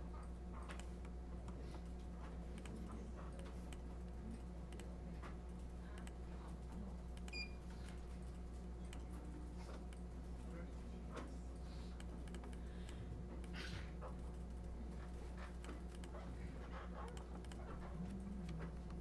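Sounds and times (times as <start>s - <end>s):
low electrical hum: 0.0s - 19.0s
mouse and keyboard clicks: 17.0s - 17.8s.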